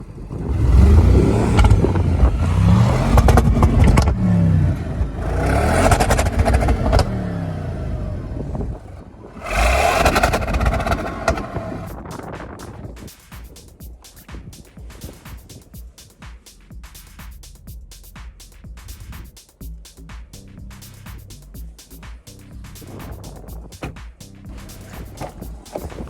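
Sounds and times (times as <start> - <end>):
car engine revving: 0.0 - 12.1, 20.7 - 26.0
exhaust cracks: 0.0 - 26.0.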